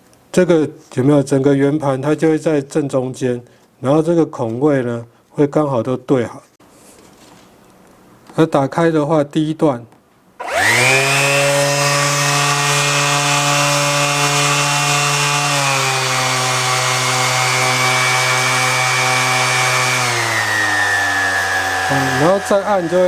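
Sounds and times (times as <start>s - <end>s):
orbit sander motor whining: 10.4s - 23.0s.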